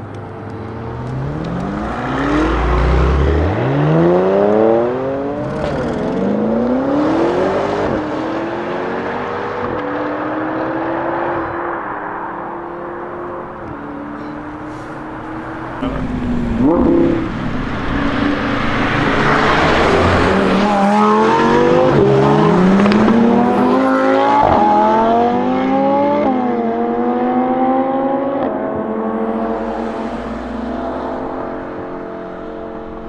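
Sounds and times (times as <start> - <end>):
sports car accelerating with upshifts: 0.0 - 33.0.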